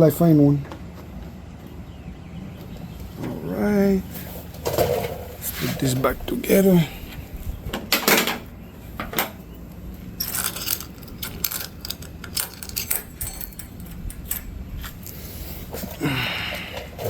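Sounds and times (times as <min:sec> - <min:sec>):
parts and tools clinking: 0:10.2 - 0:17.0.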